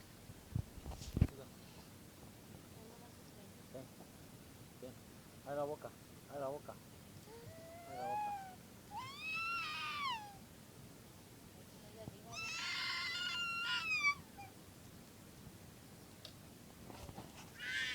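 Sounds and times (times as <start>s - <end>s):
cat meowing: 7.5s - 10.4s, 12.3s - 14.5s.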